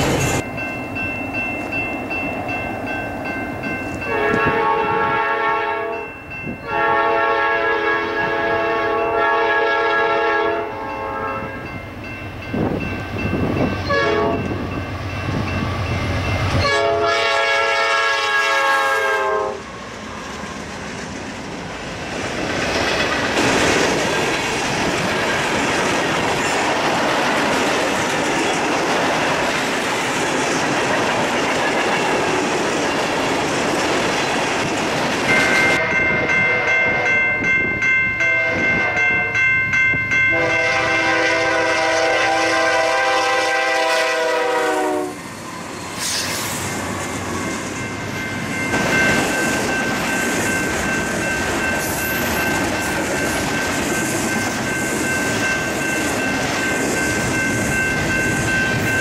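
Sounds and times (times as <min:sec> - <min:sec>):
low rumble of locomotives: 0:00.0 - 0:59.0
train air horn blasts: 0:04.1 - 0:06.0, 0:06.6 - 0:11.6, 0:13.8 - 0:14.5, 0:16.6 - 0:19.6, 0:35.5 - 0:37.2, 0:38.3 - 0:39.4, 0:40.3 - 0:45.2
train wheels clattering: 0:19.8 - 0:35.8.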